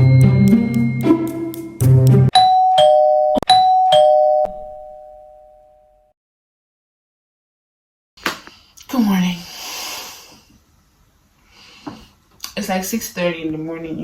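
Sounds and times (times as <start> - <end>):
two-note doorbell chime: 0.0 - 1.1, 2.3 - 6.1
intro music with a beat: 0.0 - 2.3.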